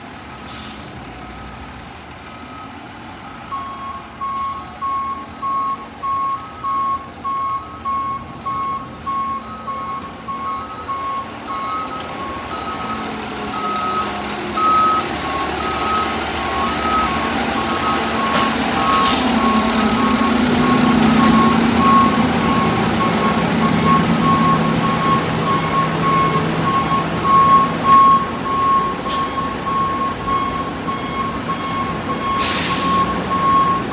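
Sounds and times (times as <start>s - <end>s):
fire engine rumble: 0.0s - 33.9s
reverse alarm beeping: 3.5s - 33.9s
sharp hiss of air: 32.3s - 33.2s.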